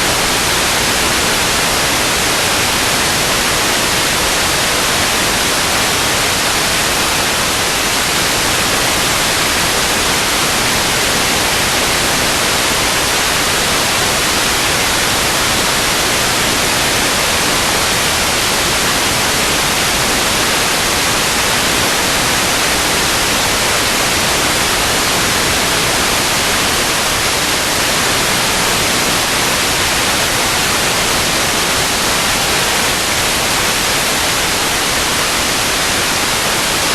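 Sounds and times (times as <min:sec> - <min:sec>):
loud static hiss: 0:00.0 - 0:36.9.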